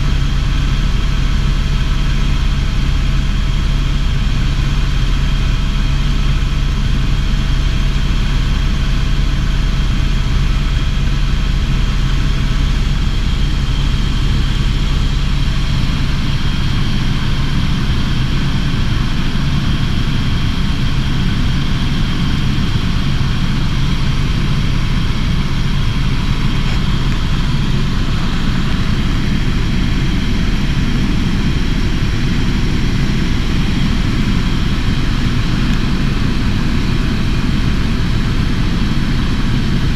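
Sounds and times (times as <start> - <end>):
helicopter cabin drone: 0.0 - 39.9
high turbine whine: 0.0 - 39.9.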